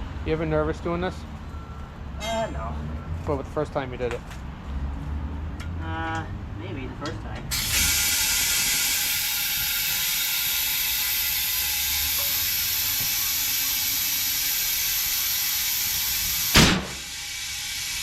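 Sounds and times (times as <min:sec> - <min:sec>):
compressed air hissing: 0:07.5 - 0:18.0
sharp air blast: 0:07.5 - 0:18.0.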